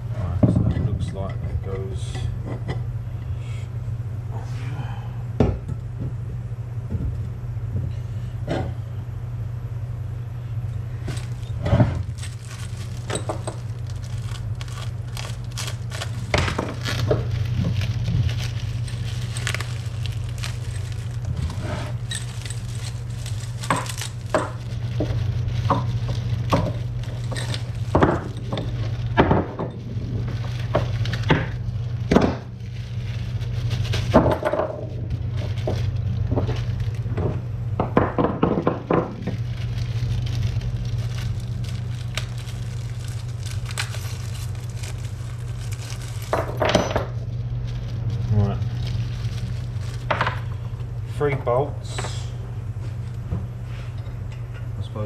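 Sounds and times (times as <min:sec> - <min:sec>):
steady low hum: 0:00.0 - 0:55.0
metal parts clinking and rattling: 0:11.1 - 0:24.8, 0:26.5 - 0:30.7, 0:41.7 - 0:47.2.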